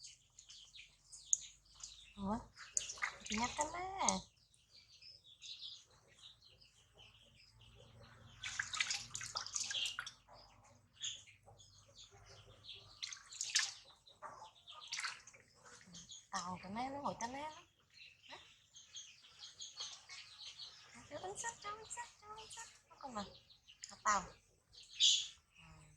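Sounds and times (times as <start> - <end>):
water splashing and dripping: 0.0 - 4.4, 8.2 - 10.5, 12.8 - 16.5, 19.3 - 22.8.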